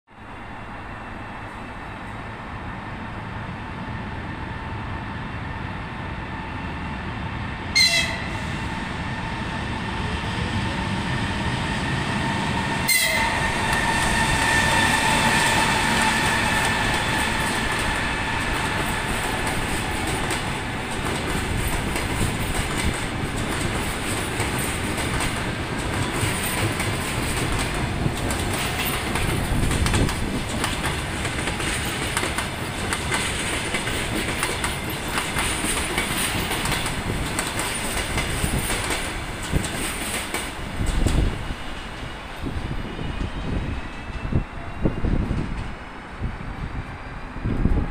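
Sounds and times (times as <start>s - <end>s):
electric locomotive high tone: 7.6s - 22.5s, 40.6s - 46.1s
train wheels clacking over rails: 10.9s - 42.2s.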